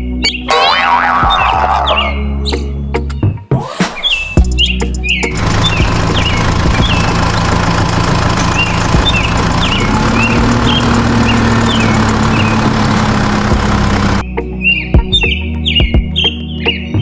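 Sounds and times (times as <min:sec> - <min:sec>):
bird chirps: 0:04.0 - 0:07.6, 0:08.4 - 0:13.2, 0:14.2 - 0:17.0
motor humming: 0:05.3 - 0:14.2.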